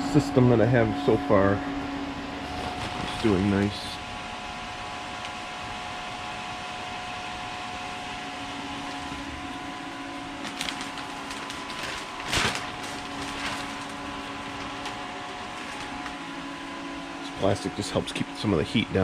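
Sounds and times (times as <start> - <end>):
faint whine: 0.0 - 19.0
heater fan whirring: 0.0 - 19.0
low hum: 0.0 - 19.0.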